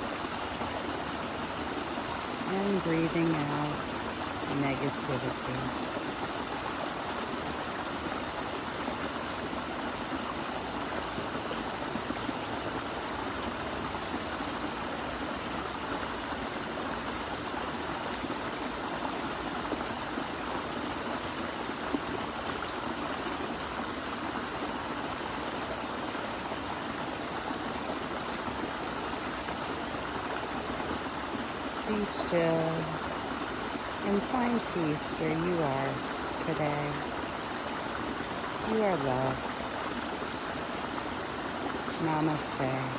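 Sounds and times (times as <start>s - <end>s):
running water: 0.0s - 42.9s.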